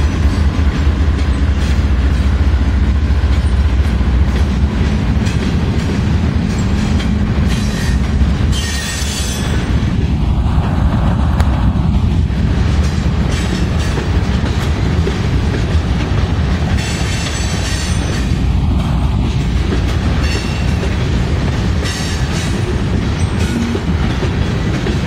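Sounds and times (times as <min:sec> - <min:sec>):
freight train rumbling past: 0:00.0 - 0:25.0.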